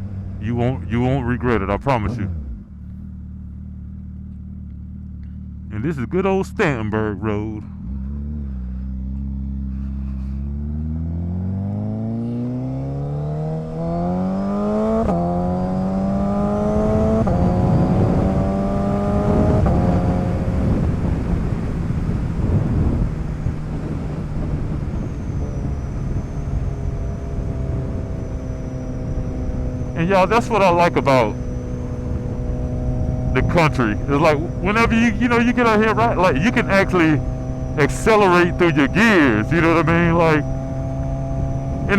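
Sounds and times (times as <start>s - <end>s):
motorcycle engine accelerating: 0.0s - 41.9s
wind noise: 16.8s - 28.3s.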